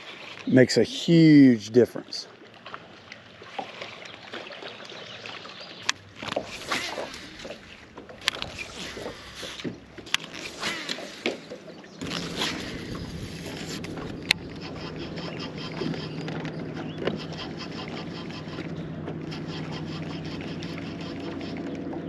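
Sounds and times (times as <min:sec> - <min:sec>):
electric motor humming: 0:06.1 - 0:22.0.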